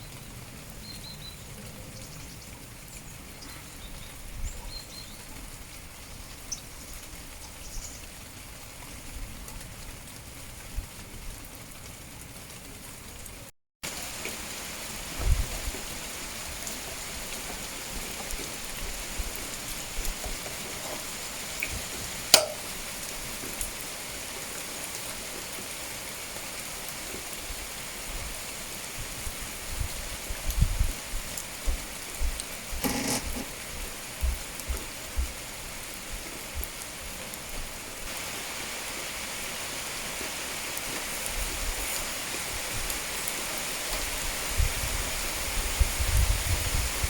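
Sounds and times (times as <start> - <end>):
steady rain falling: 0.0 - 47.0
raindrops tapping: 13.3 - 38.9
sharp single tap: 22.3 - 22.7.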